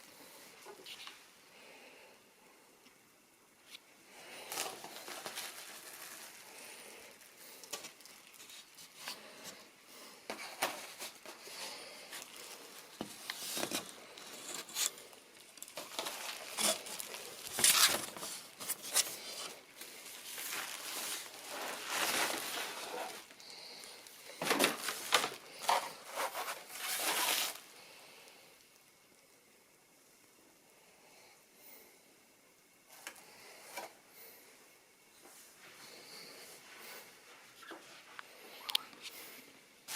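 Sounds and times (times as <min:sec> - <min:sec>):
packaging crinkling and rustling: 0:04.4 - 0:09.7, 0:10.3 - 0:27.7.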